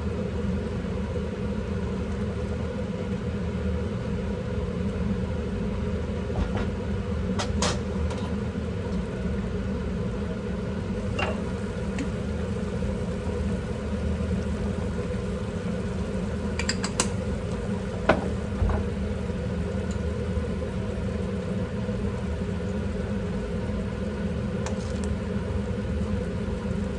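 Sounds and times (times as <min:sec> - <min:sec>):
kitchen appliance motor hum: 0:11.0 - 0:26.9
dishes clinking: 0:11.1 - 0:12.1.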